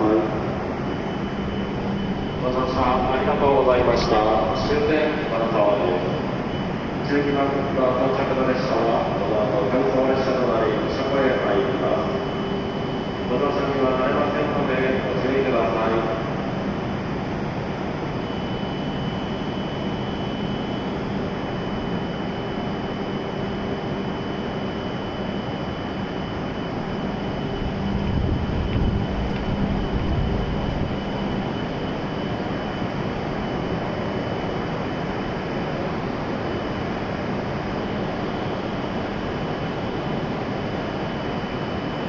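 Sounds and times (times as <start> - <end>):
idling train hum: 0.0 - 42.0
thin high whine: 0.0 - 42.0
deep rumble: 26.7 - 32.0.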